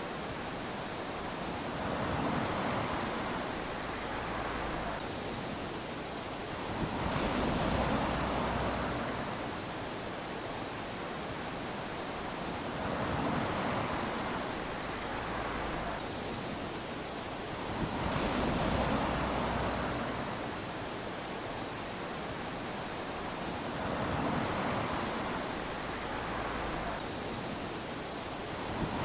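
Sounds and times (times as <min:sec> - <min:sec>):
waves lapping on sand: 0:00.0 - 0:29.0.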